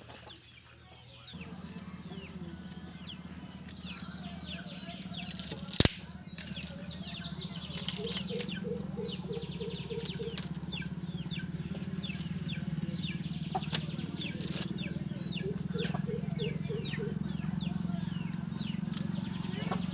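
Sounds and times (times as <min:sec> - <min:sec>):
small birds chirping: 0:00.0 - 0:19.9
clicks: 0:04.9 - 0:19.9.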